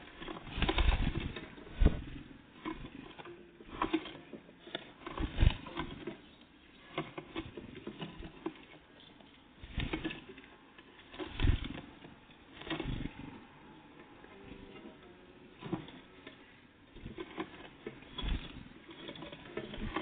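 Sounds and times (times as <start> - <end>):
loud thumps: 0.6 - 2.2.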